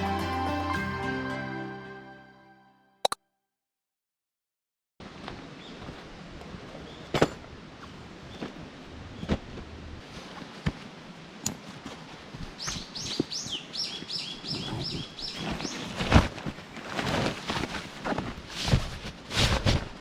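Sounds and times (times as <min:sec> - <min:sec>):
handling knocks and rustling: 0:15.4 - 0:20.0.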